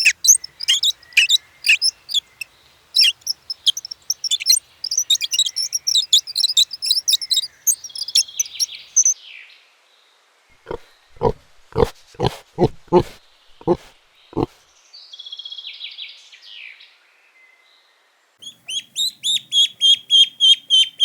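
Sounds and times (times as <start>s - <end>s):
small birds chirping: 0.0s - 9.2s, 10.6s - 14.8s, 18.4s - 21.0s.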